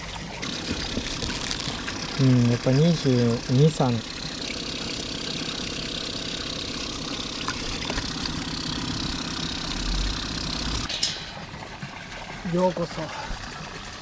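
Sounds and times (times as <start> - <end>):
motor running with fast pulse: 0.1 - 10.9.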